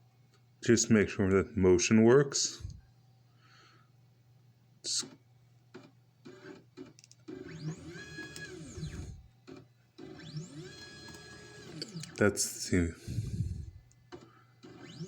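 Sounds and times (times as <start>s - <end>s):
stepper motor whine: 7.4s - 9.3s, 13.0s - 13.8s.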